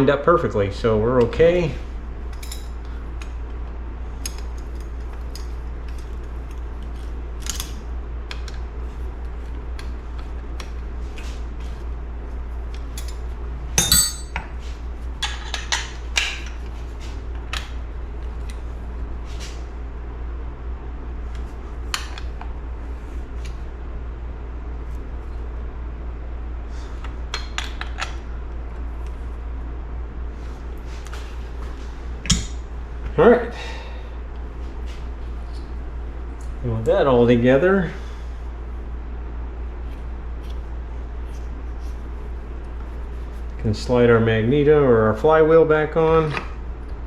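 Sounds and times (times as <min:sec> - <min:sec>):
steady low hum: 0:00.0 - 0:47.0
metal tools clinking: 0:13.8 - 0:14.4.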